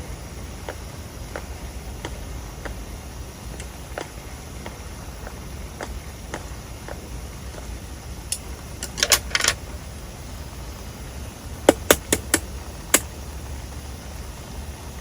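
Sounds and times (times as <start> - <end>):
low steady rumble: 0.0 - 15.0
sharp clicks and knocks: 11.7 - 13.1.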